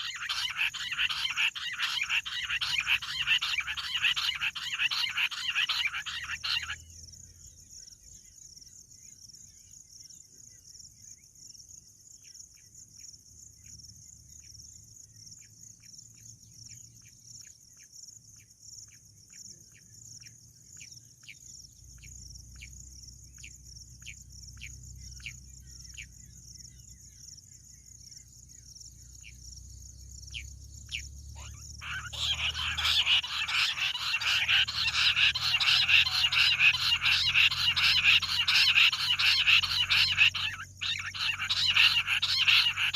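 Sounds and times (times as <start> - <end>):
quail calling: 0.0 - 6.8, 30.9 - 42.9
dense chattering chorus: 31.8 - 42.9.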